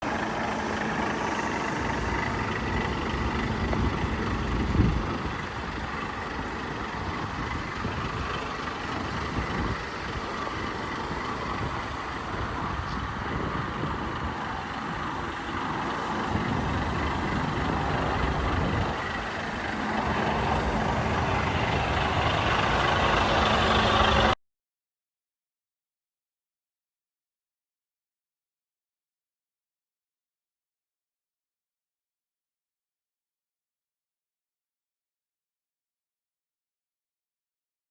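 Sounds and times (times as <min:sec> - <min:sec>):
truck diesel engine idling: 0:00.0 - 0:24.4.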